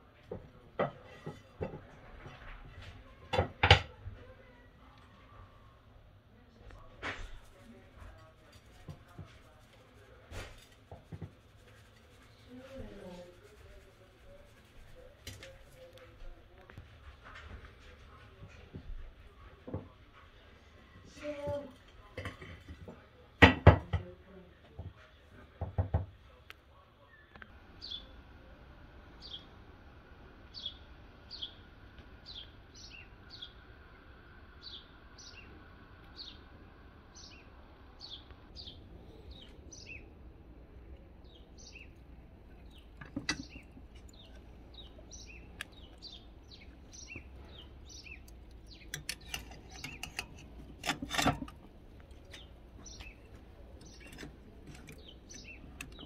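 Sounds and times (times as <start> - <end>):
faint outdoor hush: 0.0 - 56.0
small bird chirping: 41.2 - 50.4, 52.1 - 56.0
metal tongs clanking on grill: 42.7 - 44.4, 46.9 - 56.0.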